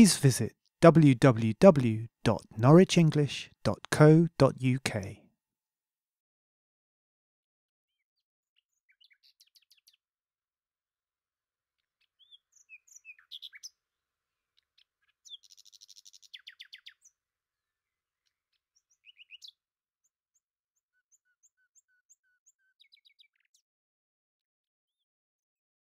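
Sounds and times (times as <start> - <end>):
bird trill: 12.0 - 13.8, 14.7 - 17.2, 18.7 - 19.6.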